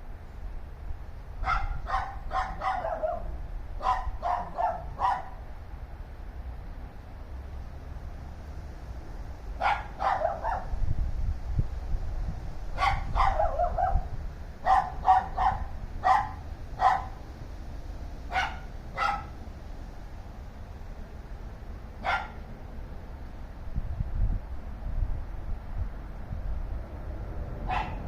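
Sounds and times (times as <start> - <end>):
dogs barking: 1.4 - 5.4, 9.6 - 10.7, 12.8 - 17.2, 18.3 - 19.4, 22.0 - 22.4, 27.6 - 28.0.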